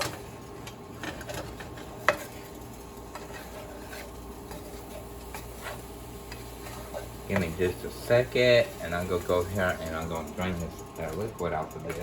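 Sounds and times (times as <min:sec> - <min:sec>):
utensil scraping a pan: 0:01.0 - 0:10.2
chicken sizzling in a pan: 0:01.0 - 0:11.2.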